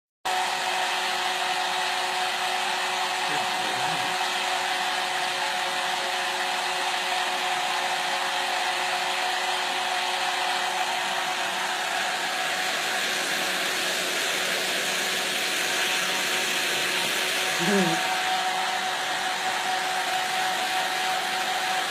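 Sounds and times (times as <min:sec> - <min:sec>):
hair dryer running: 0:00.3 - 0:21.9.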